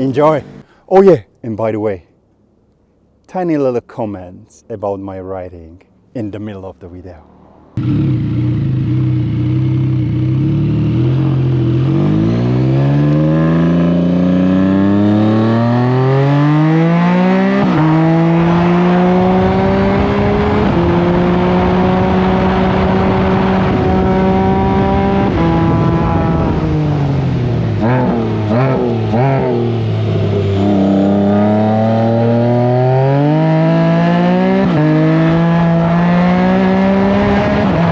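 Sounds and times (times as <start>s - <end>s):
engine accelerating hard: 7.7s - 37.9s.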